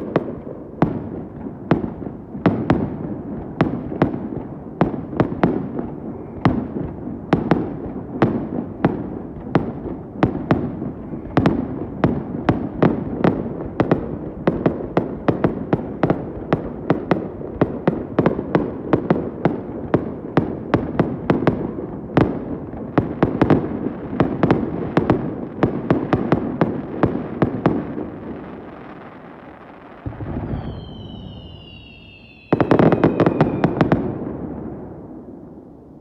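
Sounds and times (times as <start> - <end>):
fireworks bangs: 0.0 - 35.6
fireworks whistles falling in pitch: 30.0 - 34.2
echoing rumble: 30.1 - 33.8.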